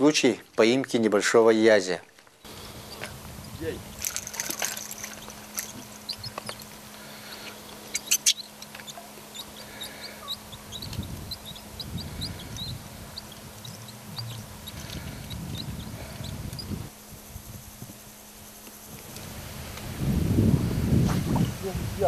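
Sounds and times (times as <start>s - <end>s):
small bird chirping: 2.4s - 16.9s
handling rumble: 2.5s - 22.0s.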